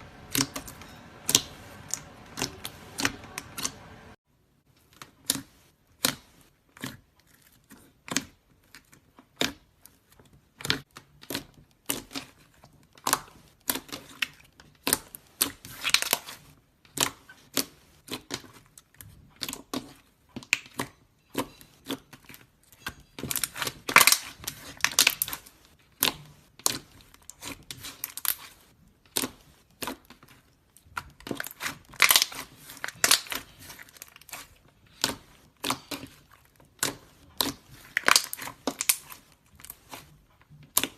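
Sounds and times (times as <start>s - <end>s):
slime crackling: 0.0s - 4.2s, 4.8s - 40.9s.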